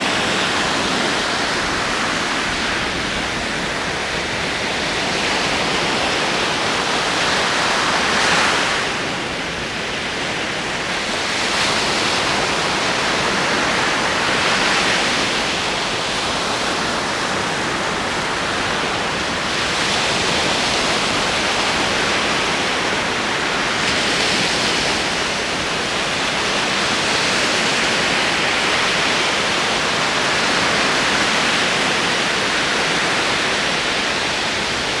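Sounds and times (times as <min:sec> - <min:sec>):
ocean waves rushing: 0:00.0 - 0:35.0.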